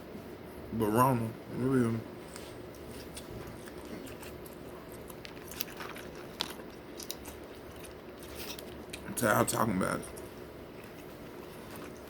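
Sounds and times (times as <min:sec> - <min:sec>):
chewing and biting food: 0:02.7 - 0:12.0.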